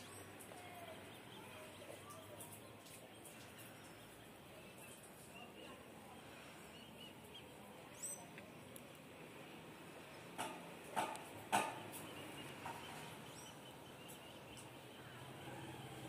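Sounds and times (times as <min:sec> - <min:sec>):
distant bird chirps: 0:11.4 - 0:16.0.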